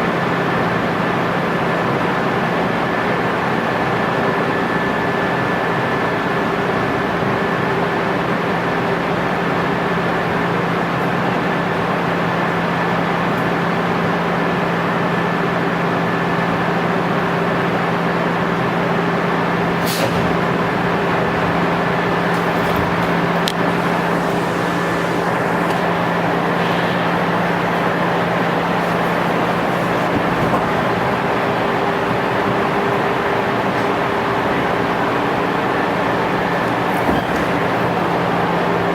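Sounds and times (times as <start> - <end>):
electric train motor hum: 11.4 - 38.9
wheel and track noise: 18.8 - 38.9.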